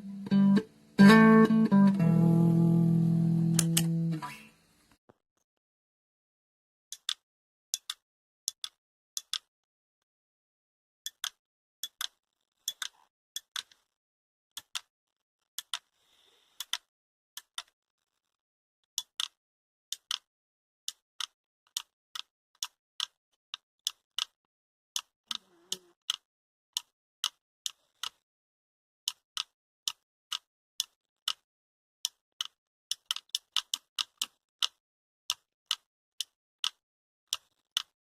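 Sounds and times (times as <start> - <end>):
sharp short clicks: 3.6 - 4.0.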